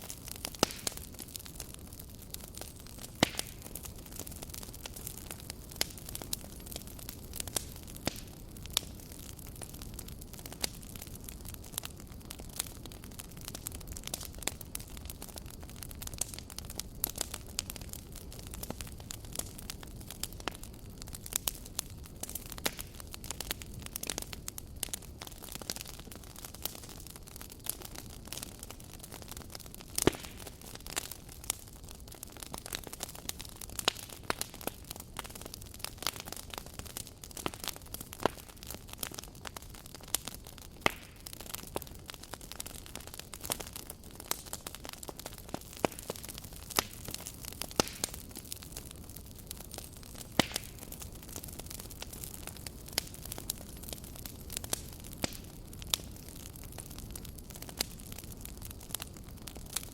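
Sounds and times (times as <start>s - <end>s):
burning logs crackling and popping: 0.0s - 59.9s
wood fire hissing: 0.0s - 59.9s.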